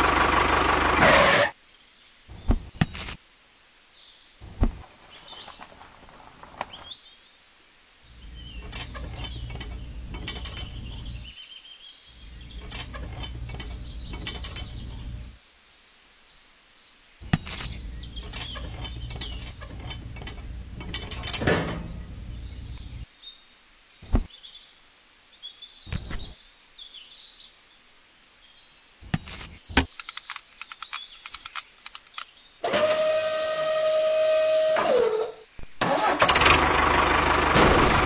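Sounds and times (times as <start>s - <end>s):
mini tractor engine whine: 0.0s - 1.5s, 32.6s - 38.0s
birds chirping: 0.0s - 32.6s
metal parts clicking and scraping: 2.7s - 3.2s, 8.5s - 11.3s, 12.5s - 15.3s, 17.3s - 23.0s, 29.1s - 32.3s.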